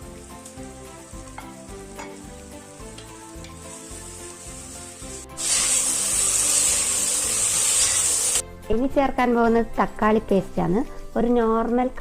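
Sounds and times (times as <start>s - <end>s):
vegetables sizzling in hot oil: 0.0s - 8.4s
background music: 0.0s - 12.0s.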